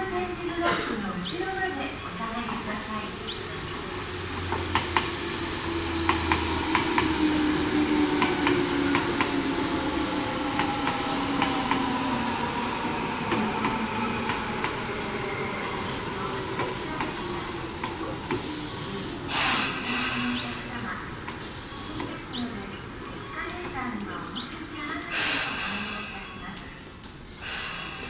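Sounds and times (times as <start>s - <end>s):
wheels clacking over rail joints: 4.3s - 11.9s.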